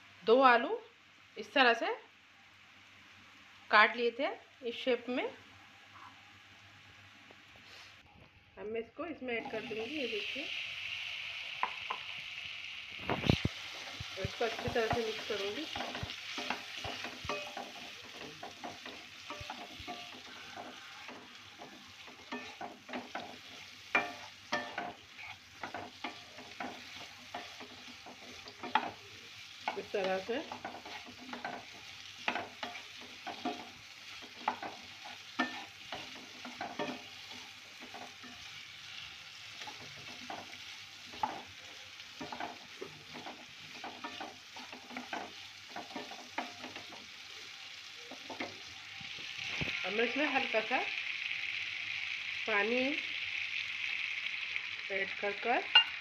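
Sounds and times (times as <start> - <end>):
potatoes sizzling in oil: 0.0 - 8.0, 9.0 - 56.0
spatula scraping and knocking pan: 13.7 - 38.6, 39.6 - 47.1.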